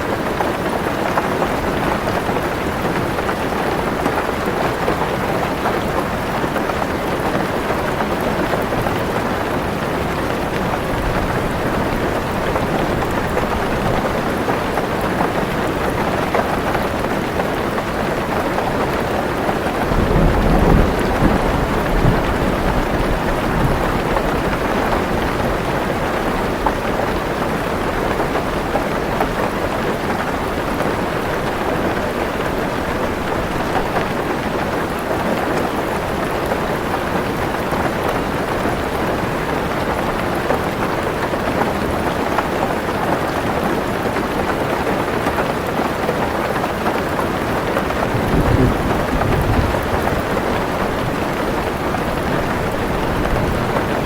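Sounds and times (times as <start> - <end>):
heavy rain on car roof: 0.0 - 54.0
low rolling thunder: 19.8 - 24.7, 48.1 - 54.0.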